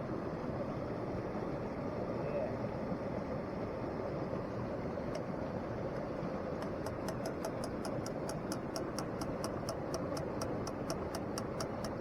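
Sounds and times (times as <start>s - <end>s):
rapid high ticking: 6.6s - 12.0s.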